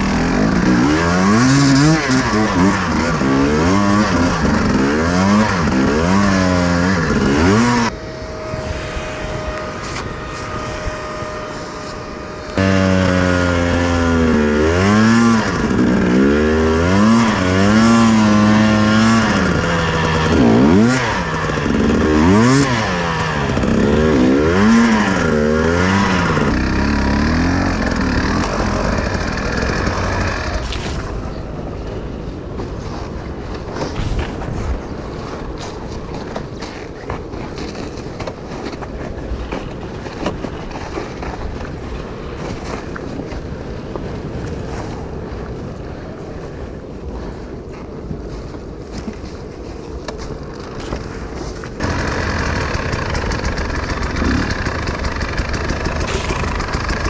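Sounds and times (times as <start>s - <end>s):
motorcycle engine revving: 0.0s - 32.5s, 33.7s - 36.3s, 51.8s - 57.0s
wind on microphone: 7.0s - 12.6s, 19.2s - 51.8s.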